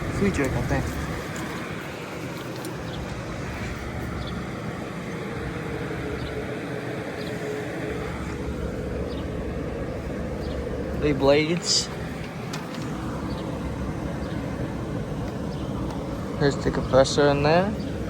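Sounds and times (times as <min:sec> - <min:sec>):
air conditioner fan rumble: 0:00.0 - 0:18.0
steady hum tone: 0:00.0 - 0:18.0.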